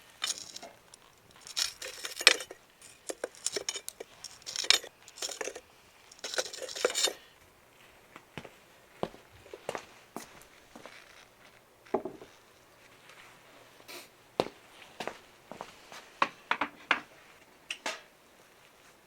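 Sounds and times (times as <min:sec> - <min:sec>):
scraping and rustling with clinks: 0:00.0 - 0:07.4.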